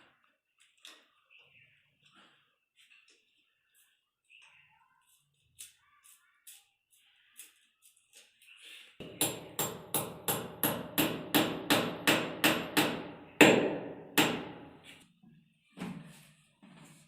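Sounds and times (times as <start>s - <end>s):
hammer striking: 9.0s - 14.8s.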